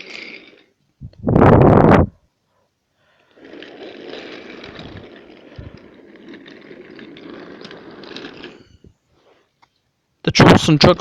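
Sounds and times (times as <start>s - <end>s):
toy train rattling on track: 0.0s - 0.8s, 3.2s - 8.9s.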